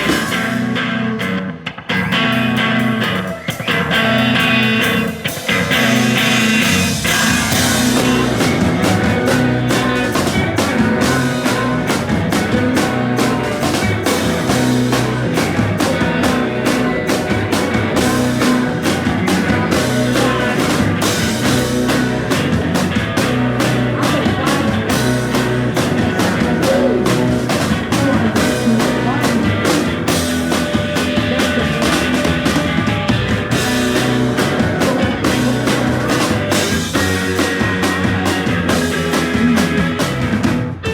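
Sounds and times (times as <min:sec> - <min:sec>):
drum kit beat: 0:00.0 - 0:01.0, 0:02.2 - 0:40.9
electric guitar: 0:00.0 - 0:40.9
psychedelic rock band playing: 0:00.0 - 0:40.9.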